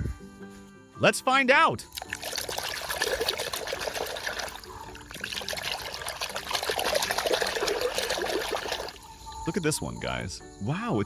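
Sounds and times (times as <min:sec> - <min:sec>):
water trickling and splashing: 0:01.9 - 0:09.6.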